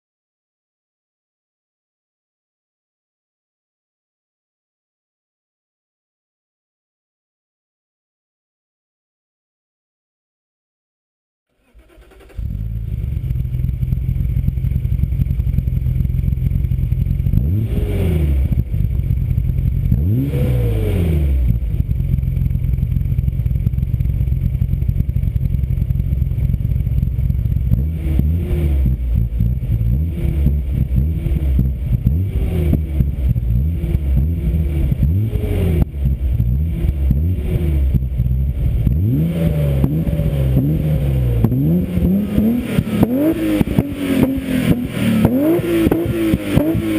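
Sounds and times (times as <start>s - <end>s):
car engine idling and revving: 11.6s - 46.9s.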